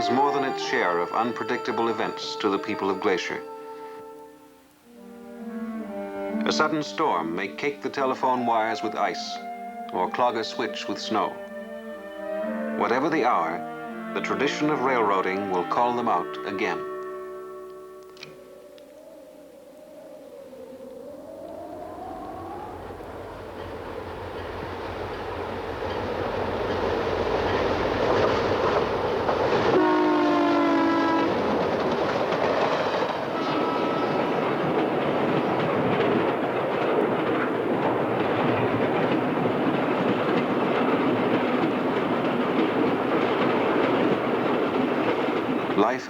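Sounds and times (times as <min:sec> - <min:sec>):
wheels clacking on rails: 0:00.0 - 0:04.2, 0:21.4 - 0:46.0
train horn: 0:00.0 - 0:18.8, 0:25.1 - 0:45.7
train rumbling past: 0:00.0 - 0:46.0.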